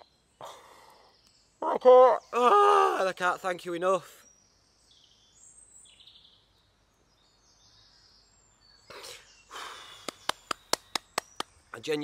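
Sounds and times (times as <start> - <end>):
faint birds chirping: 0.0 - 12.0
short breaths: 0.4 - 1.2, 8.9 - 10.3.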